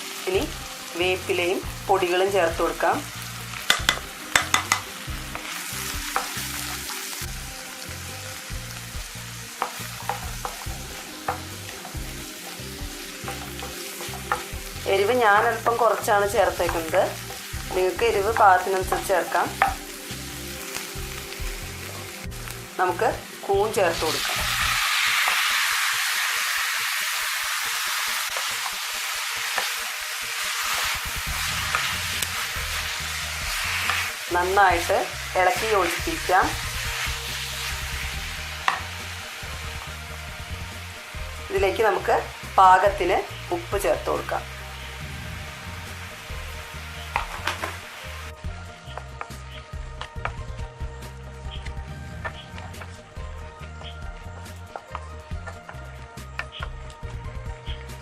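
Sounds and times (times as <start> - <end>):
food sizzling in a pan: 0.0 - 58.0
spoon scraping a pan: 3.6 - 6.7.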